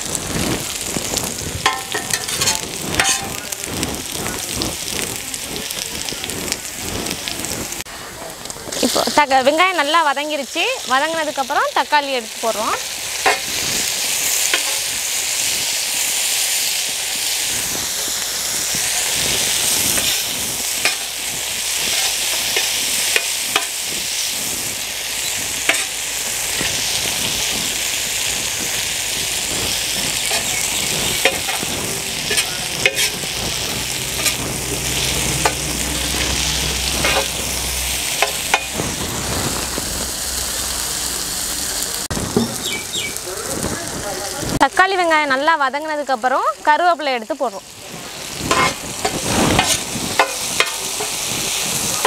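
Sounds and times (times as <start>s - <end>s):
vegetables sizzling in oil: 0.0s - 52.0s
spatula scraping and knocking pan: 1.6s - 3.6s, 13.2s - 13.6s, 14.4s - 14.9s, 19.9s - 23.9s, 25.6s - 27.6s, 29.4s - 39.1s, 48.5s - 52.0s.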